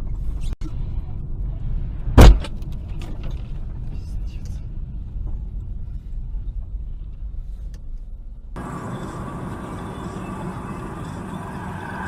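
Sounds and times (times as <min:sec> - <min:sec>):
car road noise rumble: 0:00.0 - 0:12.0
hissy road noise: 0:08.6 - 0:12.0.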